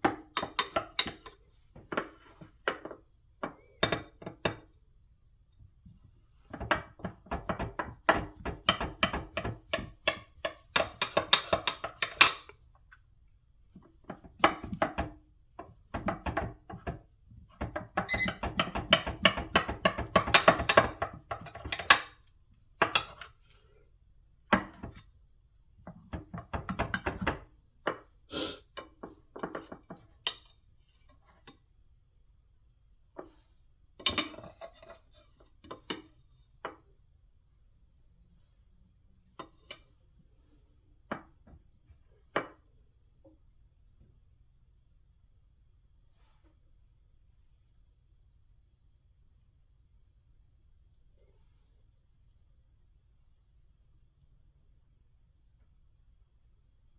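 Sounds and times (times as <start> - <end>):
kitchenware clattering and clinking: 0.1 - 4.7, 6.5 - 12.6, 17.6 - 23.3.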